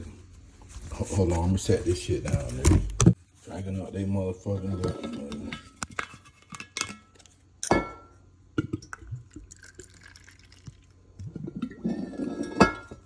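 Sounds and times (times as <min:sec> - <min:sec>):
liquor pouring from bottle: 0:09.0 - 0:11.4.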